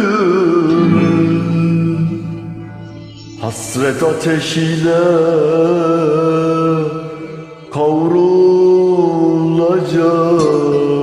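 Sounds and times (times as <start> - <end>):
music: 0.0 - 11.0
person singing long held notes: 0.0 - 11.0.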